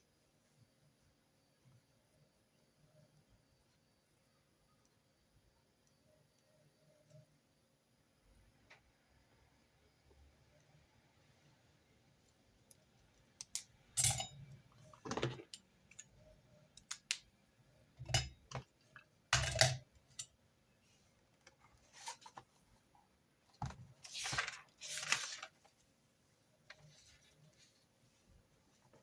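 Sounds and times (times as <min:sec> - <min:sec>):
paper rustling: 0:23.9 - 0:25.9.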